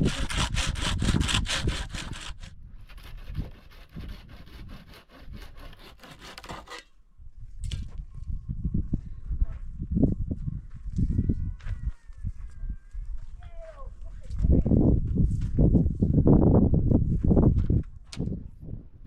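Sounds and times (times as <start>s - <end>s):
hand saw cutting wood: 0.0s - 6.9s.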